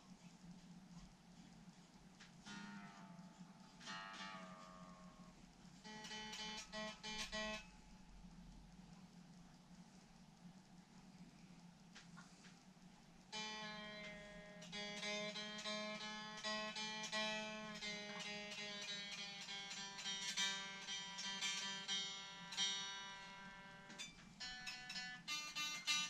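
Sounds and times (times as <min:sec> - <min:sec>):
steady low hum: 0:00.0 - 0:26.0
guitar picked notes and chords: 0:02.4 - 0:07.7, 0:13.3 - 0:26.0.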